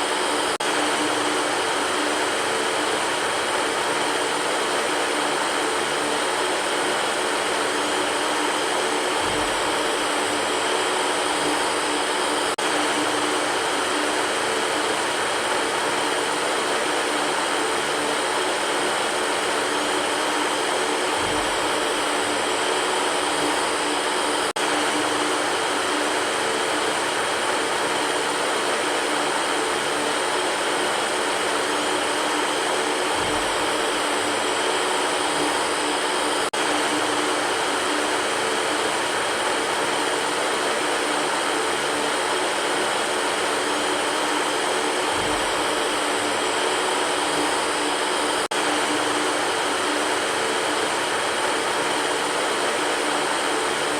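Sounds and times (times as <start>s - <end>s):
electric fan air rushing: 0.0s - 53.9s
low motor hum: 5.8s - 15.8s, 20.4s - 27.6s, 32.8s - 39.4s, 45.0s - 51.8s.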